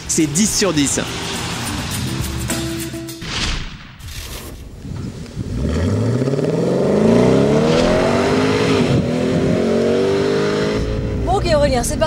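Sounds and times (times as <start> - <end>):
car engine accelerating hard: 5.4 - 12.0.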